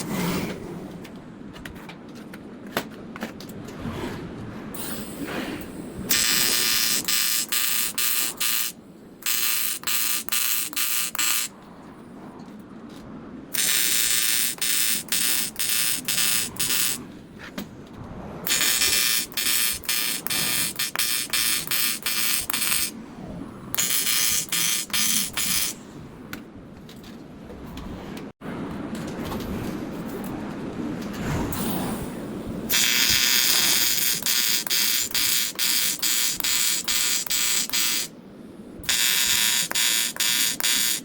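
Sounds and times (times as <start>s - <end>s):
welding arc buzzing: 6.1s - 11.6s, 13.5s - 17.0s, 18.5s - 23.0s, 23.8s - 25.8s, 32.7s - 38.1s, 38.8s - 41.0s.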